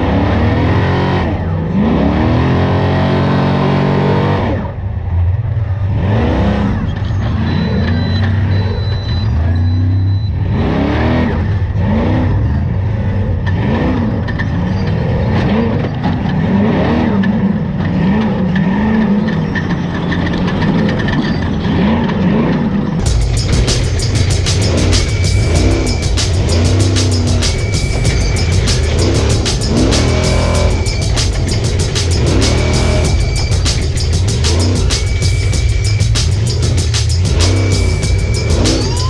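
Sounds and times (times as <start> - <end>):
race truck engine revving: 0.0 - 39.0
short high beep: 7.1 - 10.4, 23.1 - 39.0.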